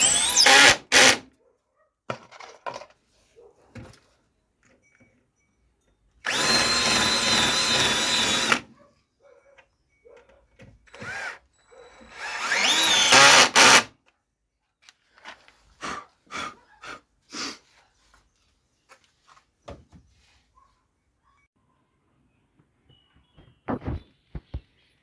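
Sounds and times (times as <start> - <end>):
electric drill whining: 0.0 - 1.2, 6.2 - 8.7, 10.9 - 13.9.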